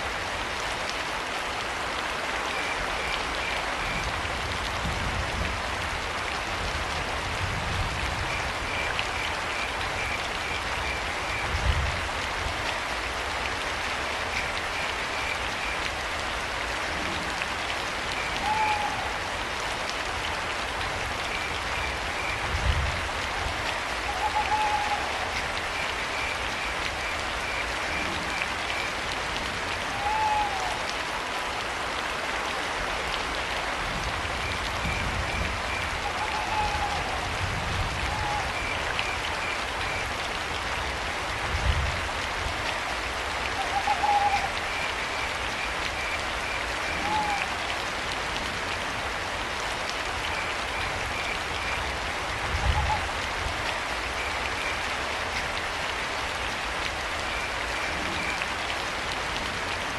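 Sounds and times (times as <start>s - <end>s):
steady rain: 0.0s - 59.9s
owl hooting: 18.4s - 19.1s, 24.1s - 25.2s, 29.9s - 30.8s, 36.1s - 37.2s, 43.6s - 44.5s, 47.0s - 47.5s.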